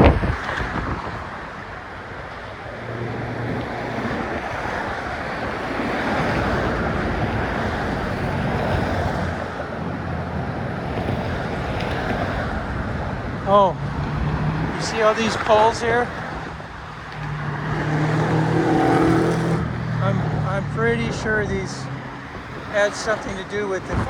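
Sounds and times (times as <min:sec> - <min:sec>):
road traffic passing close by: 0:00.0 - 0:24.0
wind over microphone: 0:00.0 - 0:24.0.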